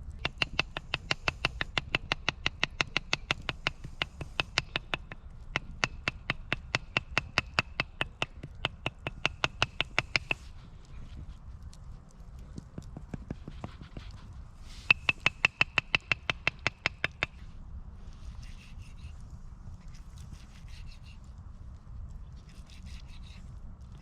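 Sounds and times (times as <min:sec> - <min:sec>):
rapid ringing taps: 0:00.2 - 0:10.5, 0:14.8 - 0:17.4.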